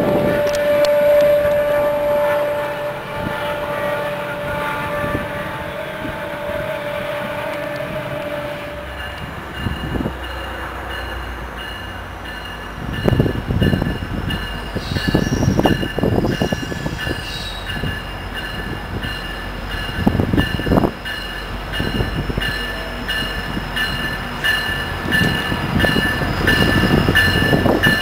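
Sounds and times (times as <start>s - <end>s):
train horn: 0.0s - 9.4s
diesel locomotive rumble: 0.0s - 28.0s
train wheels clanking on track: 8.8s - 28.0s.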